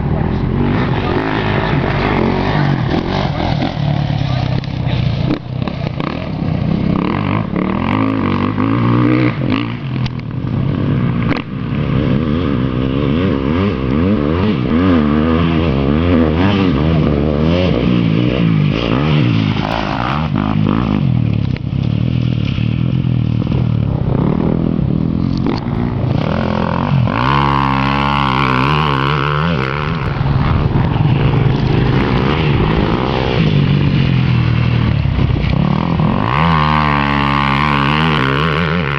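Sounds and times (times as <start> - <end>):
motocross bike engine revving: 0.0 - 38.9.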